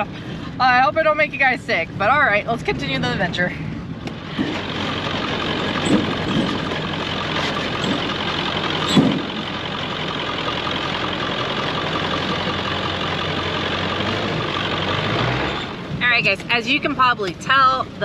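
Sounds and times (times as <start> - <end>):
diesel truck engine driving: 0.0 - 18.0
short thumps: 5.6 - 9.6.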